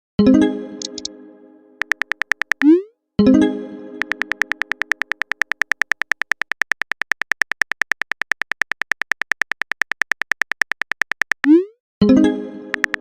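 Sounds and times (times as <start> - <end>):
phone keyboard tapping clicks: 0.8 - 1.1, 1.8 - 2.7, 4.0 - 11.7, 12.7 - 13.0.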